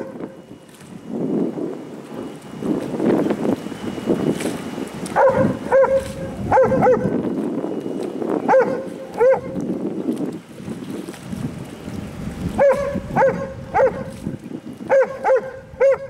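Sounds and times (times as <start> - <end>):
dog barking: 5.2 - 7.1, 8.5 - 9.6, 12.6 - 14.1, 14.9 - 16.0.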